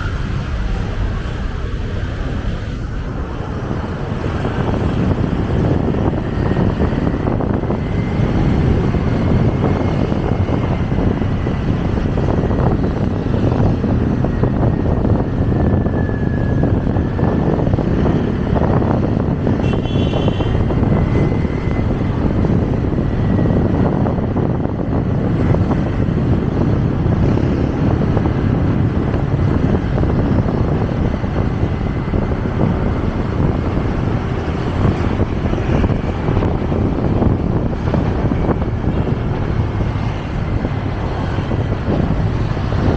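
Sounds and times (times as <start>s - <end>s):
wind and road noise: 0.0s - 42.9s.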